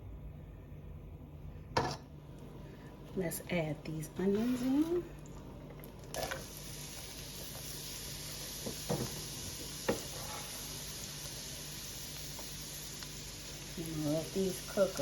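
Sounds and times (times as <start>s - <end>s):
onions sizzling in a frying pan: 4.1s - 5.2s, 5.8s - 15.0s.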